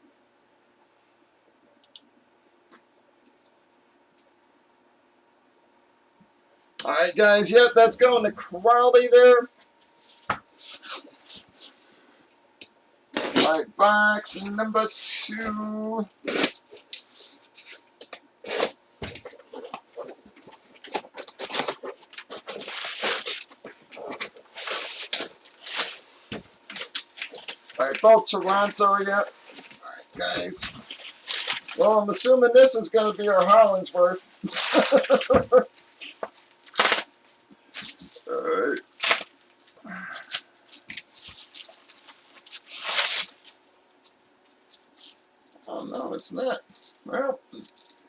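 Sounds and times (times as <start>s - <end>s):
packaging rustling and tearing: 18.4s - 45.8s, 46.6s - 48.0s.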